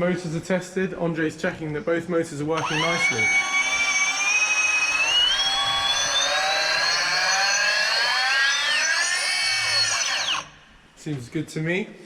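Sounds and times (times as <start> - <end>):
drone motors whining: 2.6 - 10.6.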